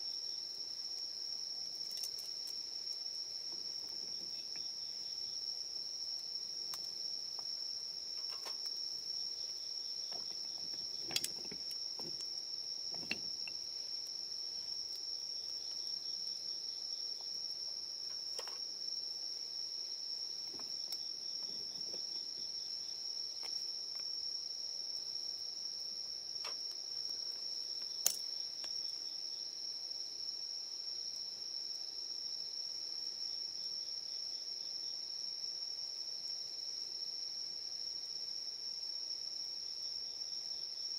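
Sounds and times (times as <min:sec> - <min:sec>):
crickets trilling: 0:00.0 - 0:40.9
campfire crackling: 0:00.4 - 0:29.1.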